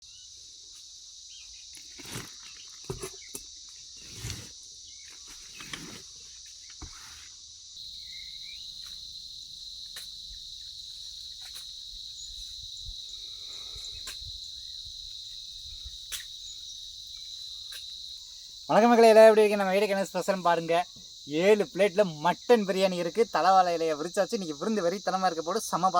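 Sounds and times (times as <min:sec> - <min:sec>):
high-pitched insect chorus: 0:00.0 - 0:25.9.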